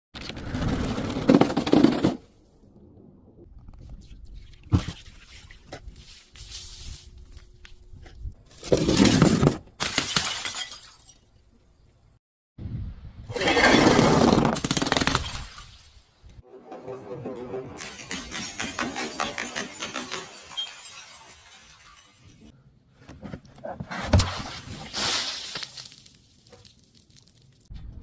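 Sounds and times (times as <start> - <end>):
glass bottles shattering: 9.9 - 11.3, 17.8 - 22.6.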